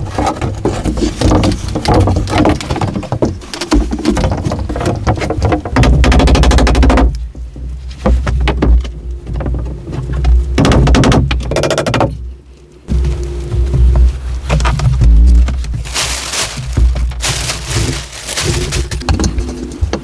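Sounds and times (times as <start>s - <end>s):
rapid rattling knocks: 0.0s - 12.3s.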